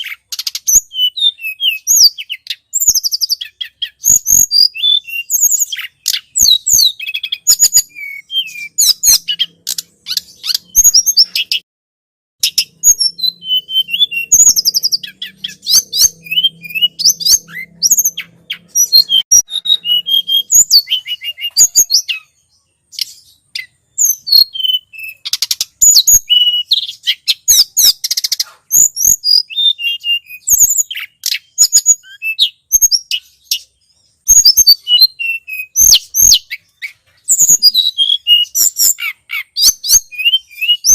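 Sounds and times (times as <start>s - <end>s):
songbird chirping and trilling: 0.0s - 11.7s, 12.4s - 40.9s.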